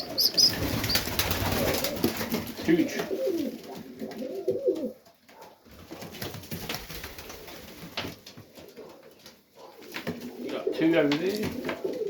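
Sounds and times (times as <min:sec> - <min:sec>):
pigeons cooing: 0:00.0 - 0:05.5, 0:08.6 - 0:12.0.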